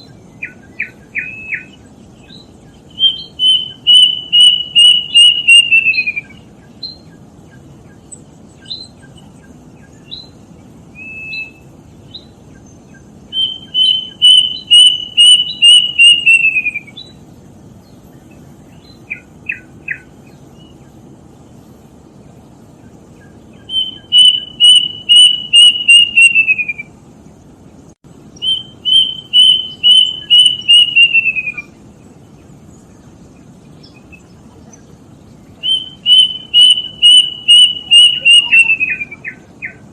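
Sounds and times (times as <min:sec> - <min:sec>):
cuckoo whistled song: 0:00.0 - 0:17.2, 0:18.8 - 0:20.8, 0:23.2 - 0:27.0, 0:28.4 - 0:31.8, 0:35.6 - 0:39.9
low steady hiss: 0:00.0 - 0:39.9.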